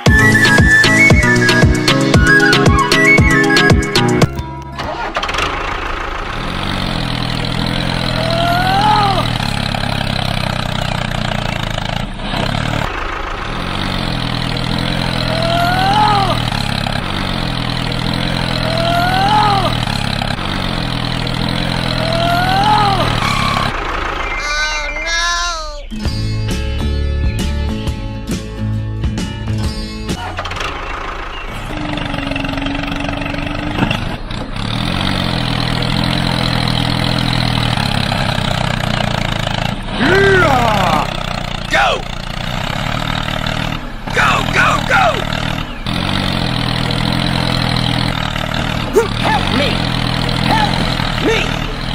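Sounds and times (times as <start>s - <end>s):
whistling glide: 0.0s - 4.4s, 21.9s - 26.0s
vehicle engine idling: 0.0s - 51.9s.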